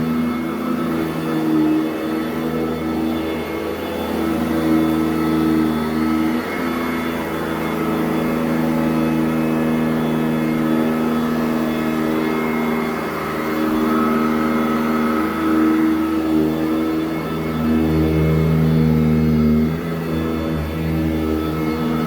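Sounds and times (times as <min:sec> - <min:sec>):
vacuum cleaner running on carpet: 0:00.0 - 0:22.0.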